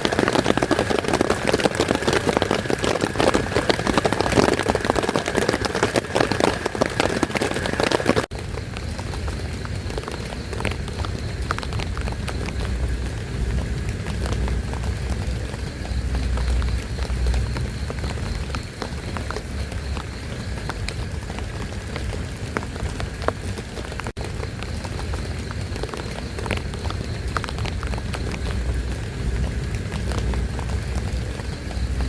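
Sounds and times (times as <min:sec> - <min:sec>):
drops ticking on a surface: 0:00.0 - 0:32.0
heavy rain falling: 0:00.0 - 0:32.0
low rumble: 0:11.0 - 0:18.6.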